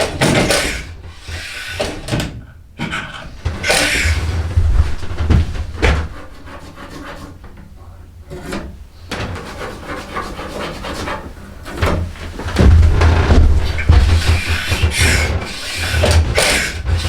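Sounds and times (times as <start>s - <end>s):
wood rubbing and scraping: 2.9s - 17.0s
sharp wooden knocks: 3.4s - 6.6s, 11.8s - 17.0s.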